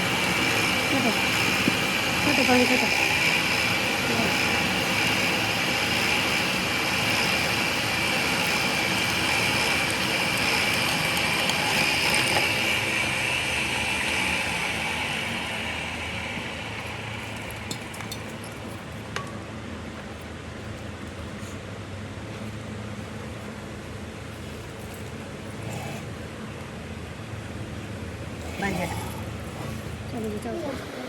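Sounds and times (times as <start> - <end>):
machine running with hiss: 0.0 - 19.5.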